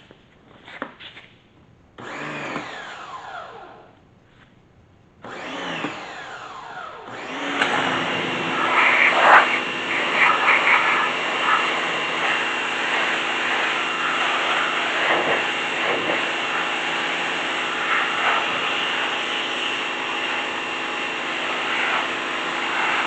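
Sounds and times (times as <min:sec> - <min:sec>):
pressure washer motor whine: 0:05.2 - 0:23.0
water spray hissing: 0:08.5 - 0:19.1.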